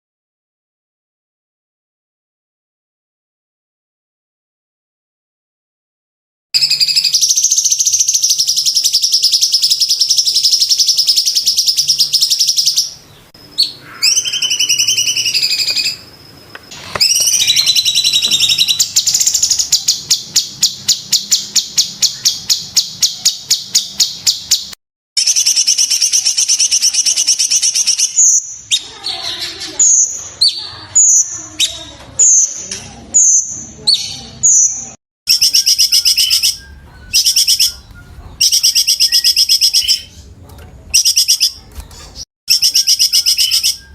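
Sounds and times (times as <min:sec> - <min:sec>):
bird singing with rattling trills: 0:06.6 - 0:43.9
bird gliding whistles: 0:13.6 - 0:16.1, 0:16.7 - 0:24.7, 0:35.3 - 0:40.1.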